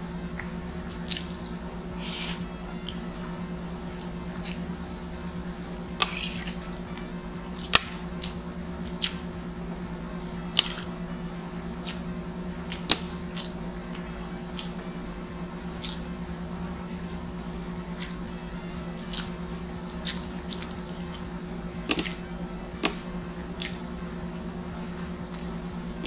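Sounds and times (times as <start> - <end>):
low background hum: 0.0 - 26.0
wet chewing and mouth sounds: 0.4 - 3.0, 6.0 - 9.3, 15.7 - 16.1, 19.0 - 22.2, 22.8 - 24.0.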